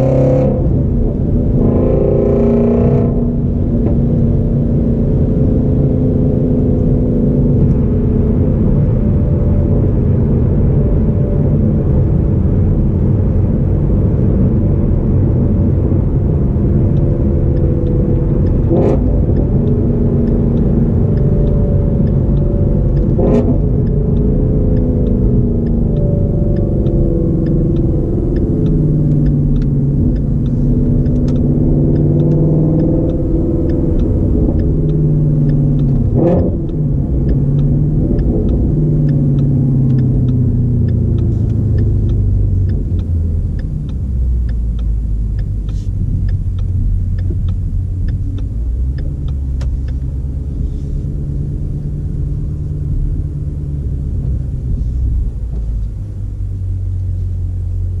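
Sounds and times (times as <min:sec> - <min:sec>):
car engine droning: 0:00.0 - 0:58.0
road noise: 0:00.0 - 0:58.0.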